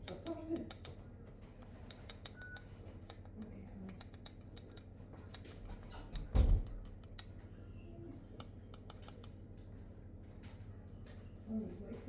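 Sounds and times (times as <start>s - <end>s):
kitchen utensils clicking and tapping: 0.0s - 1.0s, 1.6s - 7.3s.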